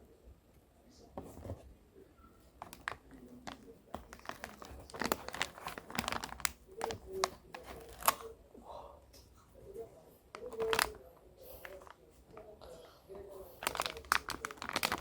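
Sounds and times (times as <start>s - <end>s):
packaging crinkling and tearing: 2.6s - 8.3s, 10.3s - 11.0s, 13.6s - 15.0s.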